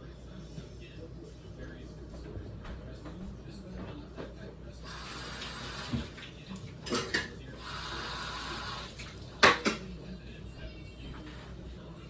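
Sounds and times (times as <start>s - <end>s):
dishes and cutlery clinking: 6.1s - 7.5s, 9.0s - 10.0s.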